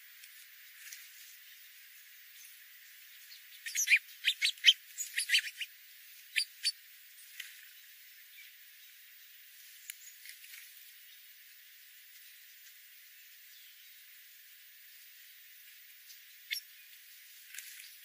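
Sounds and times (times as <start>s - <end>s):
small bird chirping: 2.3s - 9.0s, 9.8s - 11.4s, 16.0s - 18.0s.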